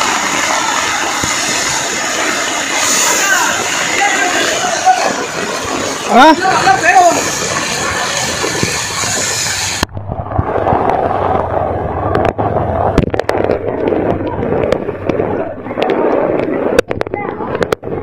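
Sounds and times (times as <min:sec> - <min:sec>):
heavy rain pouring: 0:00.0 - 0:18.0
sharp cracks: 0:00.0 - 0:18.0.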